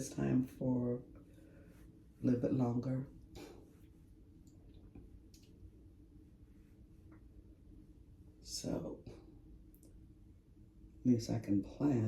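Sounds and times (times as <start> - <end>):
faint small clicks: 4.4 - 5.6.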